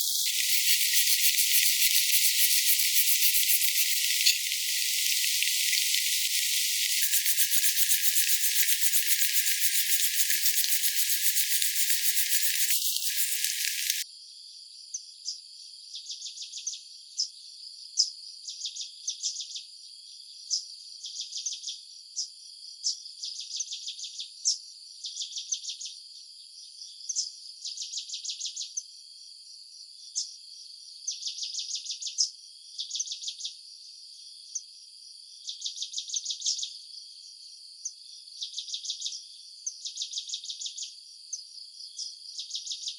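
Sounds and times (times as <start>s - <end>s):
insects chirping in pulses: 0.0s - 14.0s
loud steady hiss: 0.0s - 14.0s.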